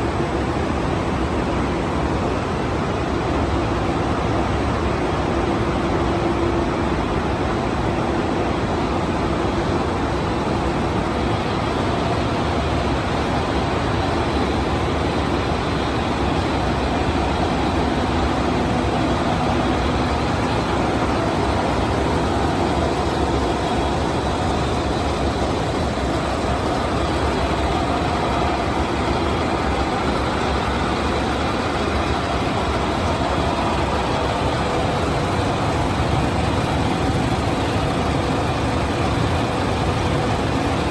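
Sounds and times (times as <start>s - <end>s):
faint machine hum: 4.5s - 40.9s
machines clattering: 10.8s - 40.9s.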